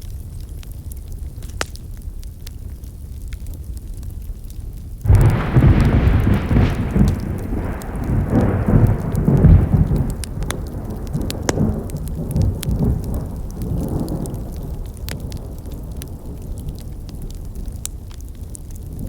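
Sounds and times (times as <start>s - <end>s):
campfire wood crackling and popping: 0.0s - 19.0s
loud low rumble: 5.1s - 13.1s.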